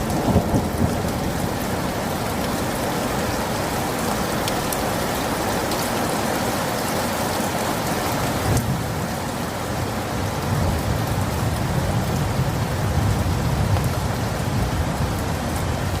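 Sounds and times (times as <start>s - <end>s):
low rumble of thunder: 0.0s - 3.8s, 10.4s - 15.9s
heavy rain: 0.0s - 16.0s.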